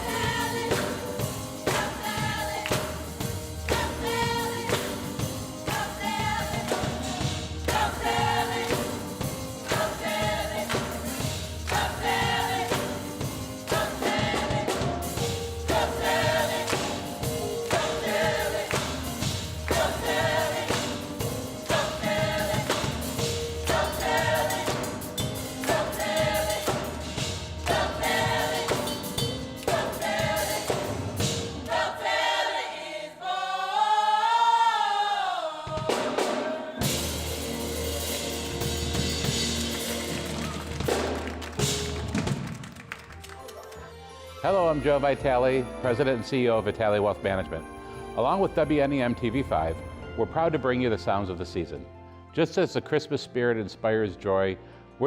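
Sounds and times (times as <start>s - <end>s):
musical accompaniment with steady beat: 0.0s - 33.5s, 35.6s - 50.2s
choir singing: 0.0s - 40.3s.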